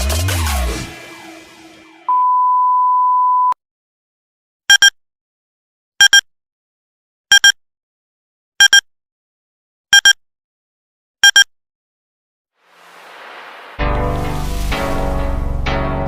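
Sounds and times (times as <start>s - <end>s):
music: 0.0s - 2.1s, 13.8s - 16.0s
rising hiss: 12.6s - 15.2s.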